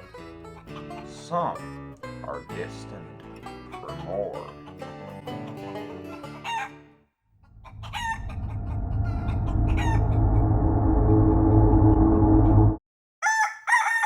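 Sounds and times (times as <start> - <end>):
plucked banjo music: 0.0 - 6.9
chicken squawking: 6.4 - 6.8, 7.4 - 10.1
low ominous rumbling drone: 7.5 - 12.8.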